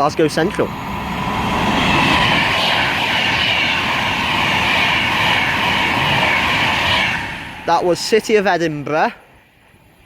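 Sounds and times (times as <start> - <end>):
electric train passing at speed: 0.0 - 10.0.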